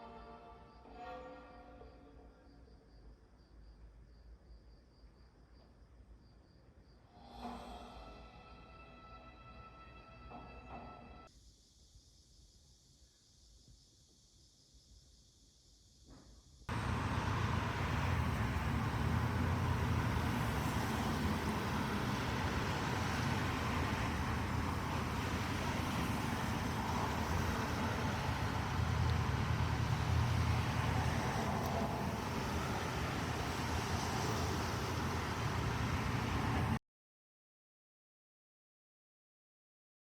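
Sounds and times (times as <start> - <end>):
traffic-like noise with low rumble: 16.6 - 36.8.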